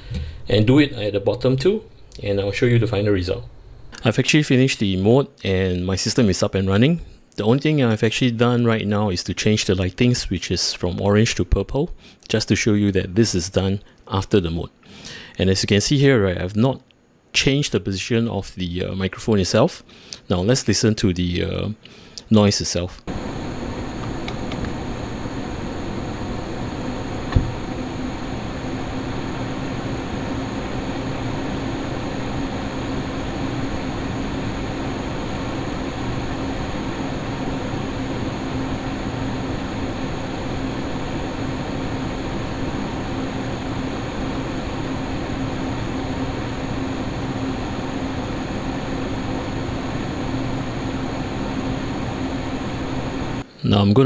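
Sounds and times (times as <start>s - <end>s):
computer fans rushing air: 23.1s - 53.4s
low hum: 23.1s - 53.4s.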